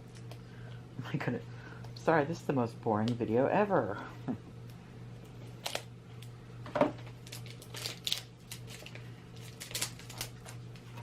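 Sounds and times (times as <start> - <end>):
steady low hum: 0.0 - 11.0
packaging clicks and crinkles: 5.6 - 6.3, 7.1 - 11.0.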